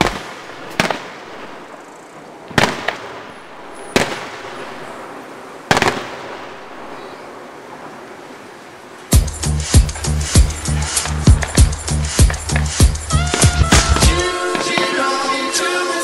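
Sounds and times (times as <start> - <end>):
fireworks bursting bangs: 0.0 - 7.8, 9.1 - 16.0
steady background noise: 0.0 - 16.0.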